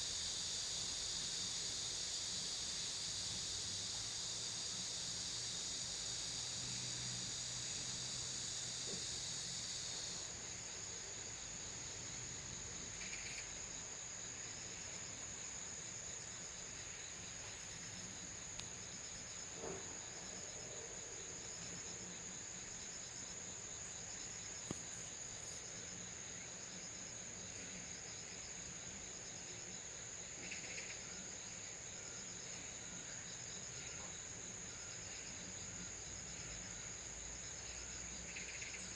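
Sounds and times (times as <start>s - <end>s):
insect buzz: 0.0s - 38.9s
insects trilling: 0.0s - 38.9s.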